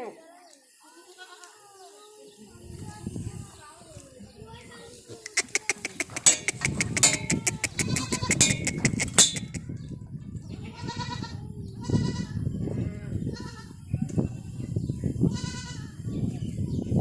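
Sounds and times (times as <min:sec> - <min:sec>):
goats bleating: 0:05.3 - 0:09.6
sharp clicks: 0:05.3 - 0:09.6.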